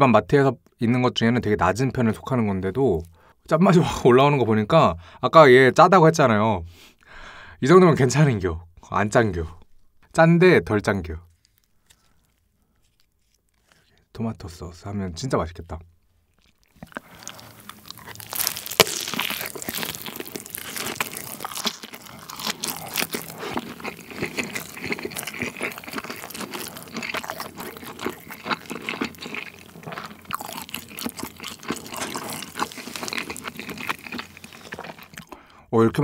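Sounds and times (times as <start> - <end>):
wet chewing with crackling crust: 11.3 - 14.1, 15.9 - 35.5
crunchy bite: 16.3 - 35.4.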